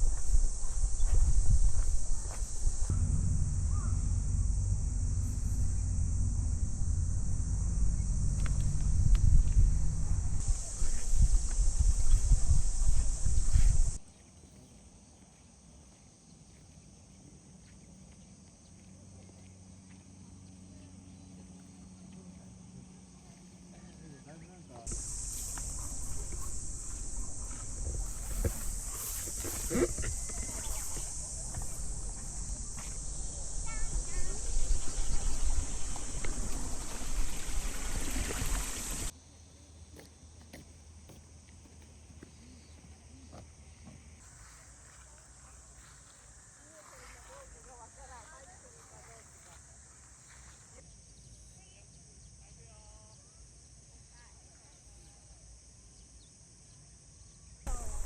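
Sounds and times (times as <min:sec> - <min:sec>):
low hum: 0:00.0 - 0:14.0, 0:24.9 - 0:39.1
wind on microphone: 0:00.0 - 0:14.0, 0:24.9 - 0:39.1
insects buzzing: 0:00.0 - 0:58.0.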